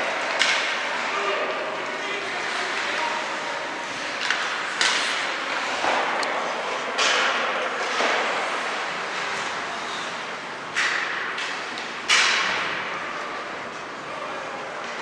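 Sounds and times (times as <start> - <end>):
arena noise: 0.0 - 15.0
stick or puck strike: 0.3 - 0.8, 4.2 - 5.2, 10.7 - 12.8
skates scraping on ice: 1.8 - 10.3.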